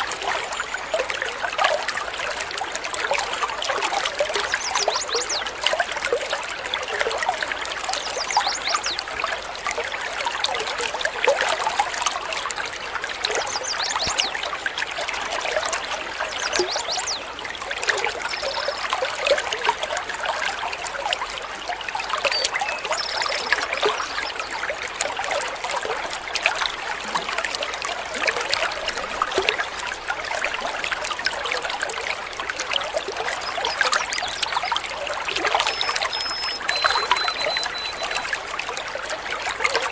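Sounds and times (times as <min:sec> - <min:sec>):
water trickling over stones: 0:00.0 - 0:39.9
high bird calls: 0:13.4 - 0:14.4, 0:22.3 - 0:24.4, 0:35.5 - 0:38.4.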